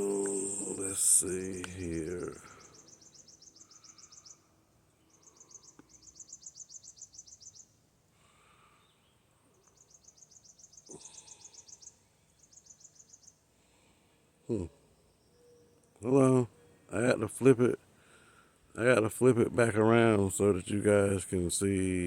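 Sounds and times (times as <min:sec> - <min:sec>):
songbird trilling: 0:00.0 - 0:07.8, 0:08.8 - 0:13.4.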